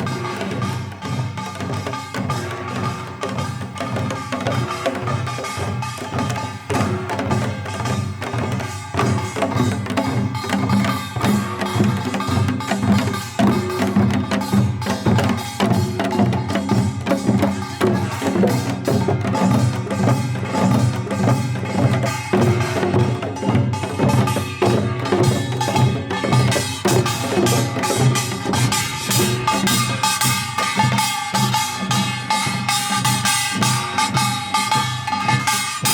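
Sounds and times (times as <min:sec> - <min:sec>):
traditional music with fast drums: 0:00.0 - 0:35.9.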